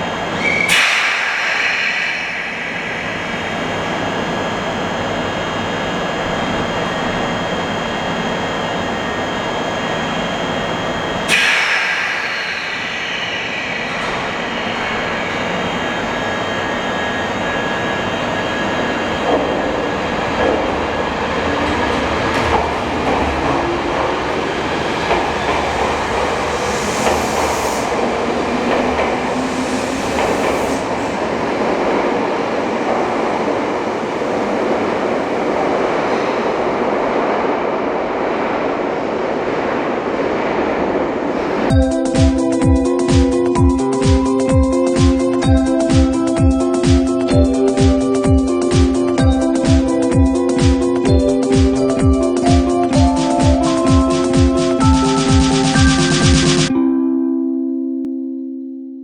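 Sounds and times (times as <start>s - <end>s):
train motors rising in pitch: 0.0s - 34.6s, 41.3s - 56.7s
wheels clattering over rails: 6.0s - 35.0s.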